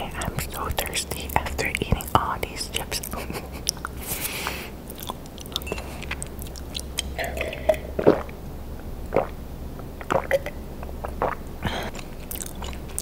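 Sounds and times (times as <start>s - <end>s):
mouth clicks: 0.1s - 8.4s, 10.0s - 13.0s
chewing crunchy crisps: 4.8s - 7.3s, 11.9s - 13.0s.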